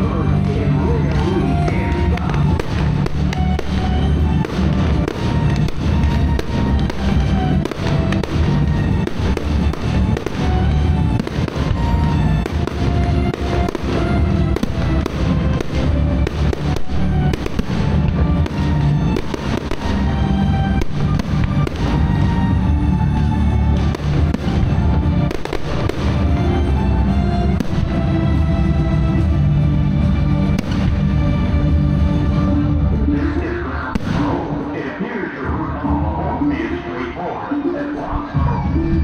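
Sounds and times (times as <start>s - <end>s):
loud music over pa system: 0.0s - 39.0s.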